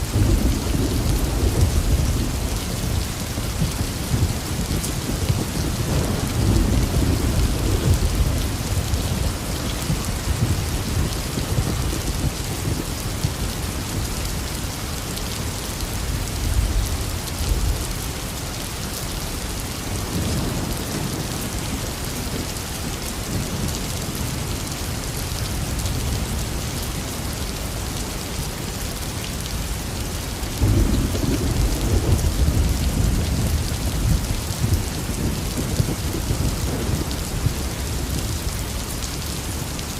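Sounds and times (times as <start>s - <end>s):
thunder rumbling: 0.0s - 13.7s, 30.6s - 39.7s
heavy rain falling: 0.0s - 39.9s.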